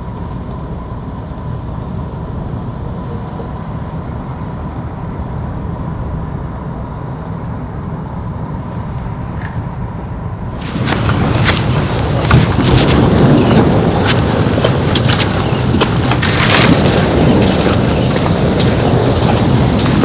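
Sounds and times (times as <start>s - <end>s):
faint high hum: 10.6s - 20.0s
wind buffeting microphone: 10.6s - 20.0s.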